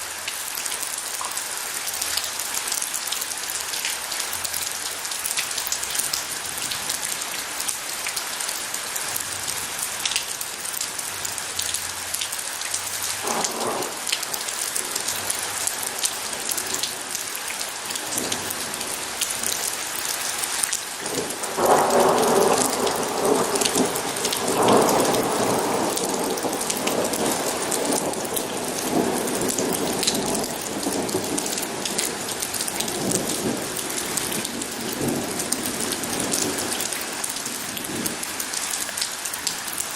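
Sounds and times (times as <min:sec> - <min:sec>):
rain hissing: 0:00.0 - 0:39.9
thunder rumbling: 0:13.2 - 0:17.3, 0:21.0 - 0:38.3.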